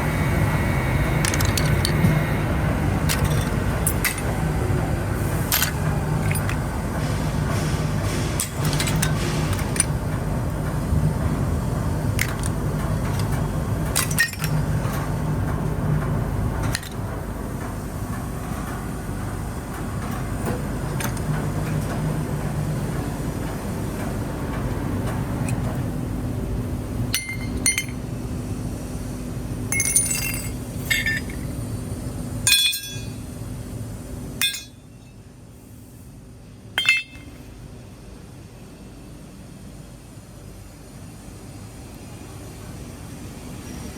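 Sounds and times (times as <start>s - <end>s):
aluminum scrap clanking: 36.8s - 37.4s.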